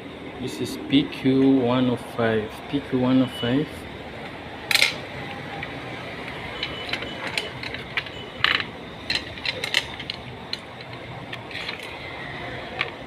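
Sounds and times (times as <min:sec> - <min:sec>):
hand tools clicking and tapping: 0:04.7 - 0:12.0, 0:12.7 - 0:13.0.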